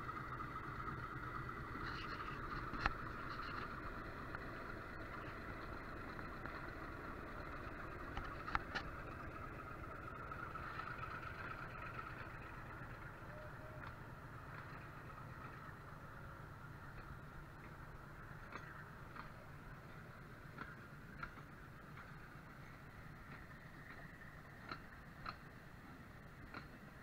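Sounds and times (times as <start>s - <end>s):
sharp clicks: 23.3s - 25.5s.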